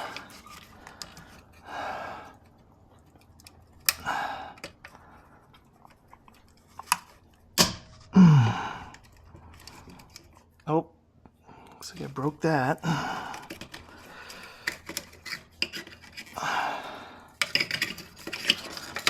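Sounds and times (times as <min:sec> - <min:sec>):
rustling scrapes: 0:00.0 - 0:01.6, 0:13.7 - 0:16.4, 0:17.4 - 0:19.0
low grunt: 0:08.1 - 0:09.0.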